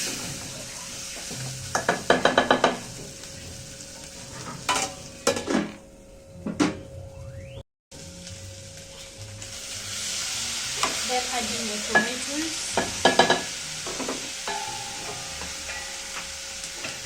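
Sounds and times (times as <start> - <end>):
garlic sizzling in hot oil: 0.0 - 5.6, 8.0 - 17.0
spoon knocking against pot: 1.8 - 2.8, 12.8 - 15.9.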